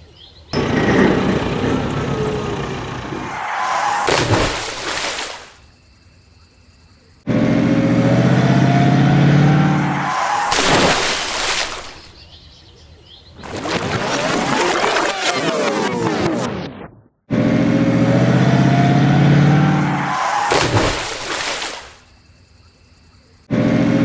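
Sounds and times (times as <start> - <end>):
truck engine: 0.6 - 4.9, 7.3 - 11.1, 17.3 - 21.2.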